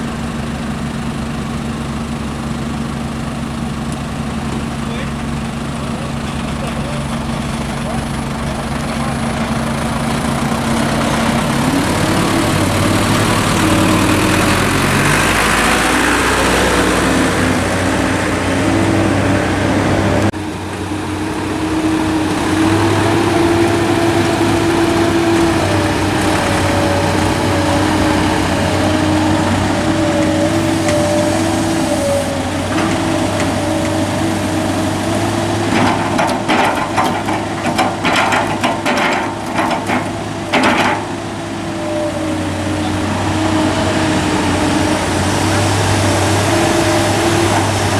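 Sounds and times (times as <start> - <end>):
heavy diesel engine under load: 0.0 - 47.9
clattering knocks: 32.6 - 41.4.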